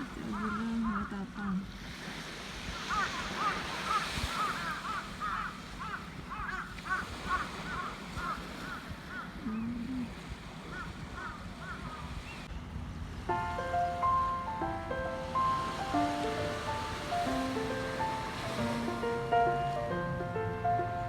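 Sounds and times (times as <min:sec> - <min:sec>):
surf washing: 0:00.0 - 0:21.0
music: 0:13.1 - 0:21.0.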